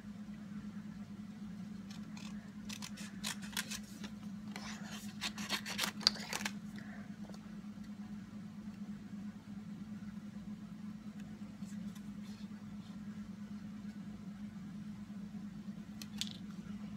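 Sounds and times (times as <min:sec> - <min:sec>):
steady low hum: 0:00.0 - 0:16.9
scissors snipping paper: 0:01.8 - 0:06.6.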